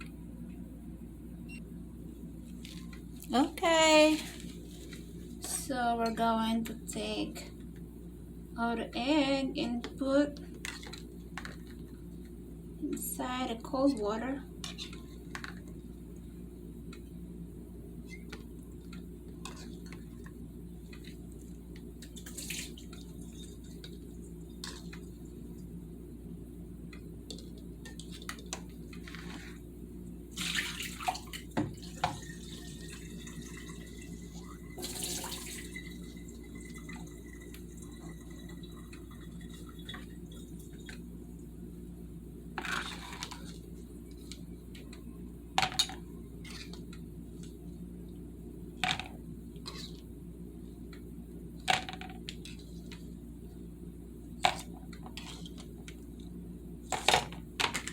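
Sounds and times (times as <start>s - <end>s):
steady low hum: 0.0s - 57.9s
water splashing and running: 22.1s - 23.8s, 30.3s - 40.9s.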